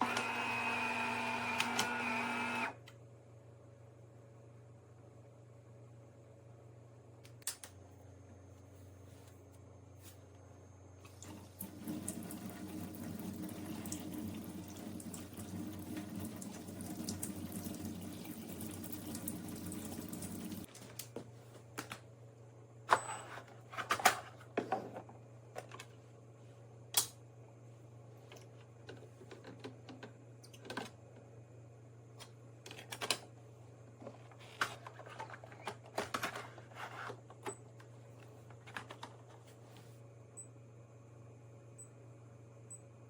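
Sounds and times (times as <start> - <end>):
espresso machine pump running: 0.0 - 2.8.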